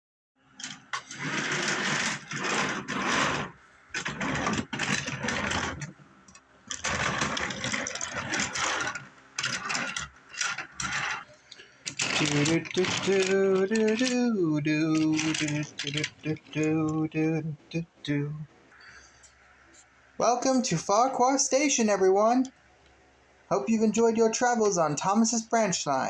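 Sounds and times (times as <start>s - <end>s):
toy train motor whirring: 0.6s - 5.9s, 6.7s - 17.5s.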